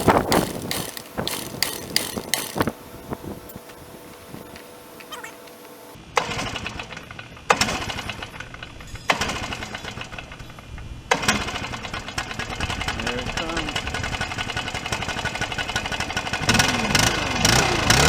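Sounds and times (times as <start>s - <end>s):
recoil starter yank: 0.0s - 6.0s.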